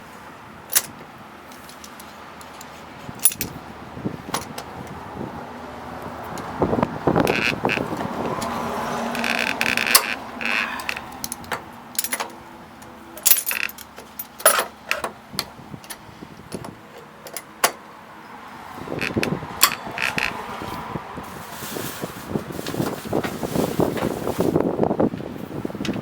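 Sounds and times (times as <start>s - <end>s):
metal tool clinking and scraping: 1.5s - 3.6s, 9.2s - 12.4s, 13.2s - 15.1s
short high squeaks: 7.2s - 11.2s.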